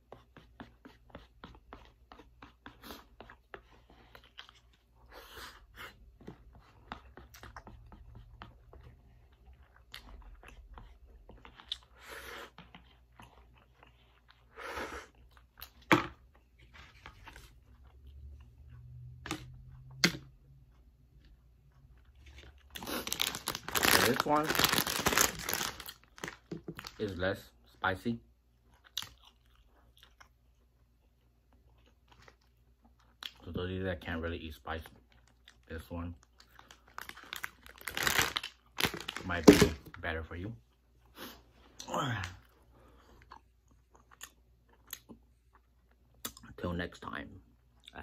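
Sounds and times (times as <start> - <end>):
person chewing noodles: 0.0 - 26.9, 28.5 - 33.4, 40.7 - 46.5.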